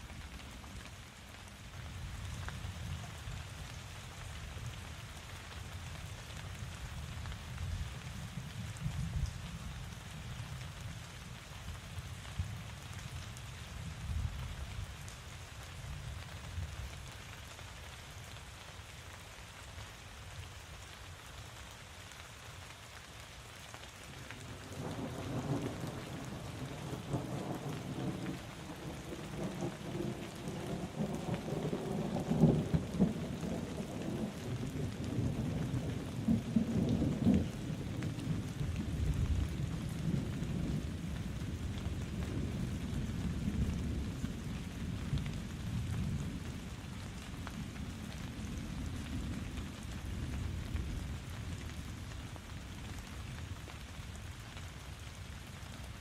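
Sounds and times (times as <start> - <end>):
steady rain falling: 0.0 - 56.0
thunder rumbling: 24.5 - 45.0.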